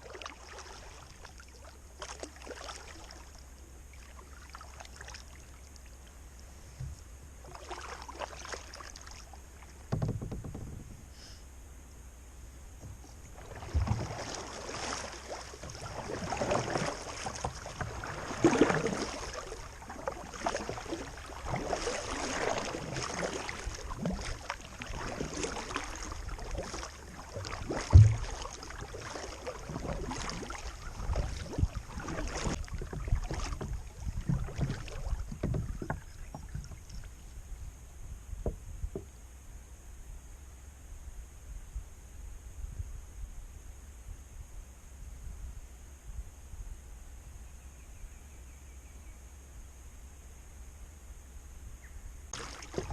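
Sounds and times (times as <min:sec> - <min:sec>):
paddle splashing in water: 0:00.0 - 0:11.1, 0:12.8 - 0:37.7, 0:52.3 - 0:52.9.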